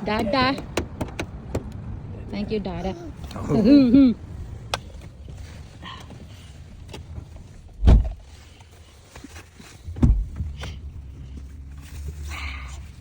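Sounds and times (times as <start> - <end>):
dull thumps: 7.7 - 8.3, 9.9 - 10.8.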